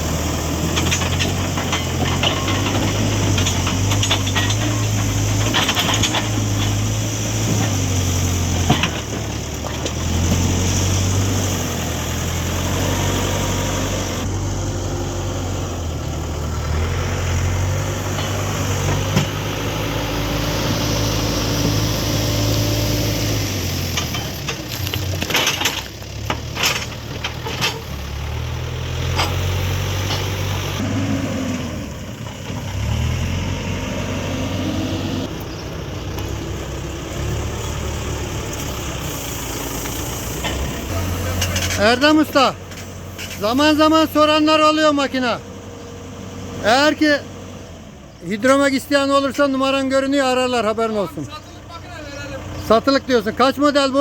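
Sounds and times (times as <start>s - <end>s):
backhoe loader diesel engine: 0.0s - 54.0s
sharp metal clanks: 0.7s - 8.0s.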